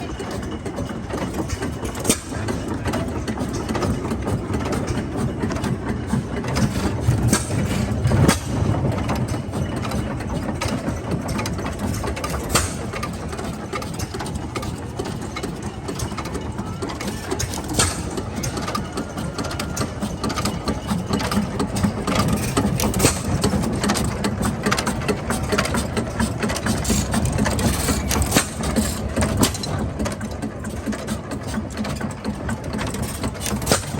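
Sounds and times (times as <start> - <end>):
gasoline engine chugging: 0.0 - 33.9
sharp engine cracks: 17.0 - 18.9.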